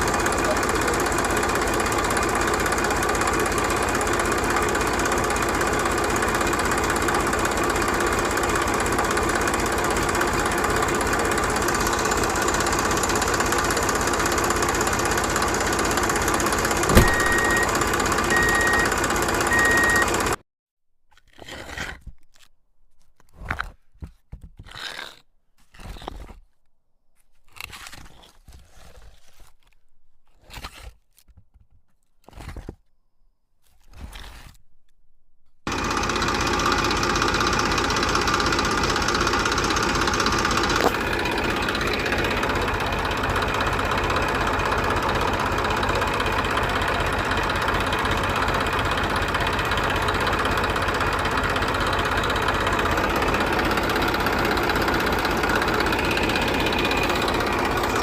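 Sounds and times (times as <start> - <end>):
small motor running: 0.0 - 20.4, 35.7 - 58.0.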